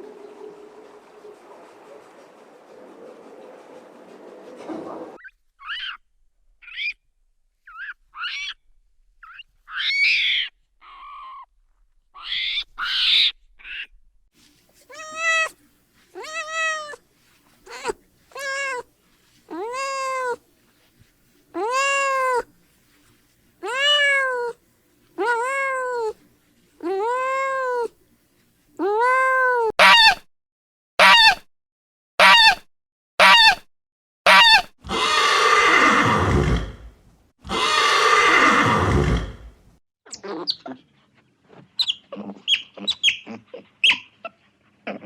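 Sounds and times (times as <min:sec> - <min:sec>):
cat meowing: 0:14.9 - 0:15.5, 0:16.2 - 0:17.0, 0:17.7 - 0:18.8, 0:19.5 - 0:20.4, 0:21.6 - 0:22.5, 0:23.6 - 0:24.6, 0:25.2 - 0:26.2, 0:26.8 - 0:27.9, 0:28.8 - 0:30.2, 0:34.3 - 0:36.2.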